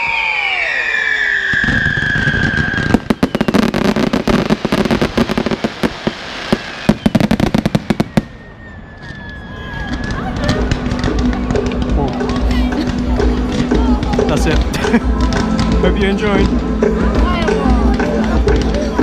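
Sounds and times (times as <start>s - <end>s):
whistling rockets: 0.0s - 12.2s
fireworks crackles and bangs: 0.0s - 19.0s.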